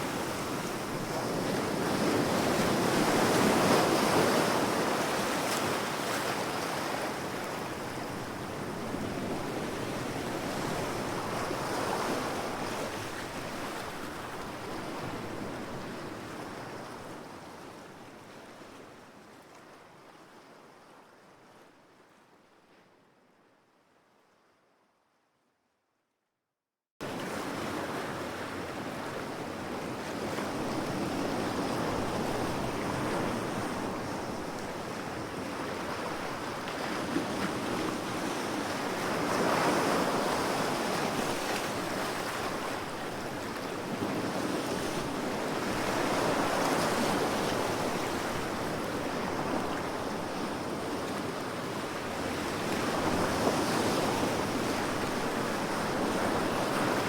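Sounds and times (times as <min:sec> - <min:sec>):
ocean waves washing ashore: 0:27.0 - 0:57.0.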